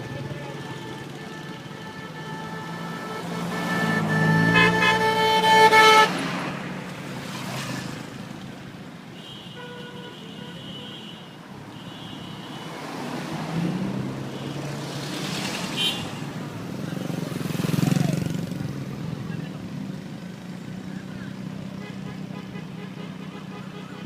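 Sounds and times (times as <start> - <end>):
vehicle horn blaring: 0.0 - 6.4, 9.2 - 12.8, 15.8 - 16.3, 21.8 - 24.0
road traffic: 0.0 - 24.0
vehicle passing: 1.8 - 8.5.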